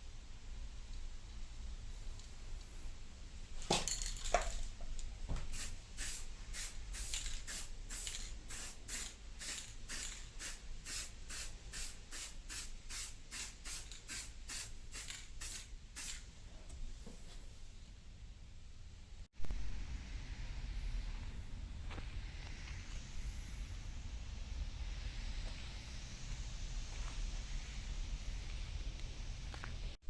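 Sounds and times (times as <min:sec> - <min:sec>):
aerosol spray can hissing: 0:05.4 - 0:16.2.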